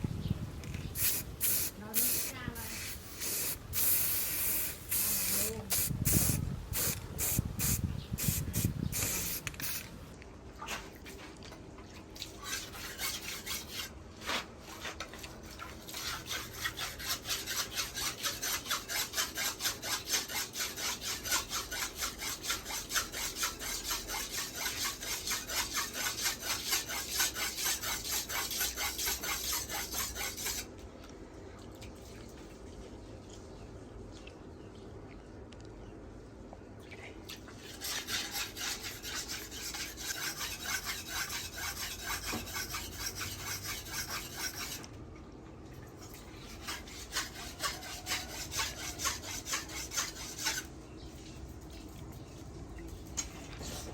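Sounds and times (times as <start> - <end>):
blade scraping on whetstone: 12.4 - 14.9, 15.9 - 30.7, 37.6 - 44.9, 46.4 - 50.7.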